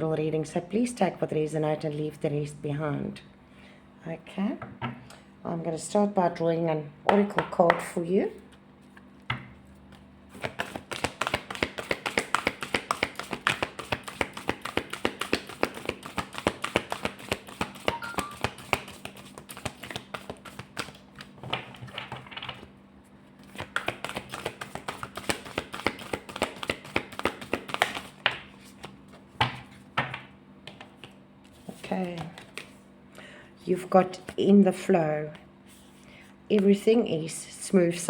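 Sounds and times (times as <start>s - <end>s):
cards being shuffled: 8.4s - 22.7s, 23.4s - 29.9s, 30.6s - 32.8s.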